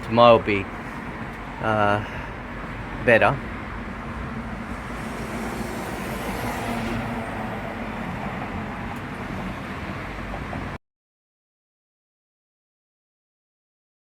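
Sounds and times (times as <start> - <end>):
steady outdoor rumble: 0.0 - 10.8.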